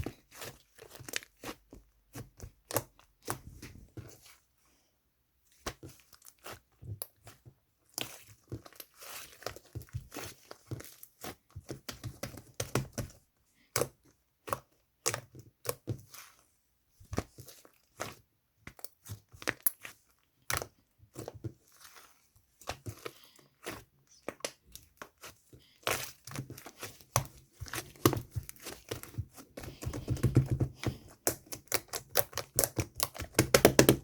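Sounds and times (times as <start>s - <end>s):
slime sticky pops and crackles: 31.2s - 34.0s.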